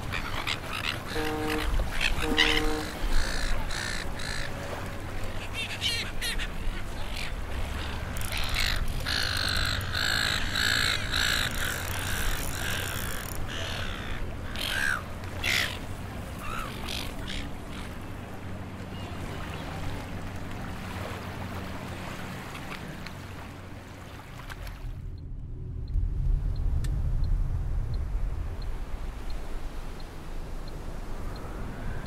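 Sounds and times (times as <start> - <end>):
birds calling: 0.0 - 20.0
steady low rumble: 24.6 - 32.0.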